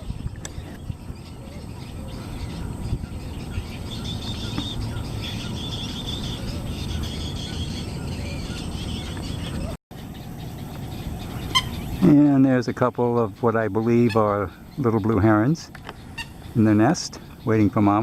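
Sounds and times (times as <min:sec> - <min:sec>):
wind rumble on microphone: 0:00.0 - 0:12.1
faint high bird calls: 0:00.0 - 0:18.0.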